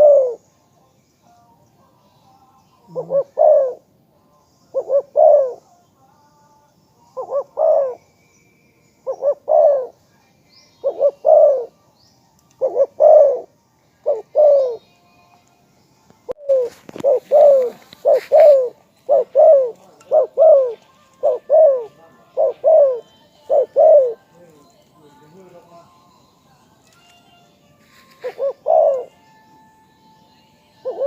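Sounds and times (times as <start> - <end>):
dove cooing: 0.0 - 0.5, 2.9 - 4.0, 4.7 - 5.7, 7.1 - 8.1, 9.0 - 10.0, 10.8 - 11.8, 12.6 - 14.9, 16.3 - 24.4, 28.1 - 29.3, 30.8 - 31.0
rustling noise: 16.5 - 18.7, 27.8 - 28.5.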